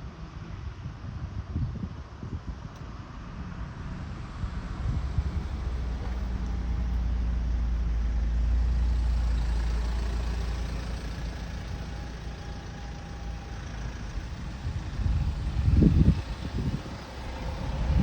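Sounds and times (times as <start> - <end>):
vehicle engine rumbling: 0.1 - 18.0.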